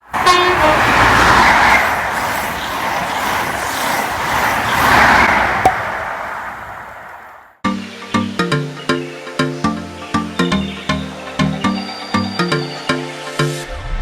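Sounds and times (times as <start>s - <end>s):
train passing at speed: 0.0s - 7.6s.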